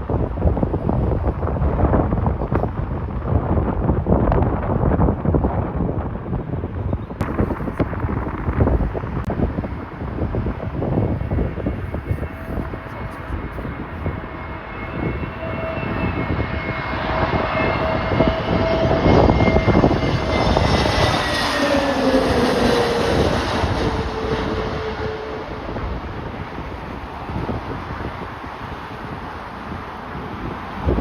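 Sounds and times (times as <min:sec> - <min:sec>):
wind rumbling on microphone: 0:00.0 - 0:31.0
jet engines whining: 0:07.2 - 0:31.0.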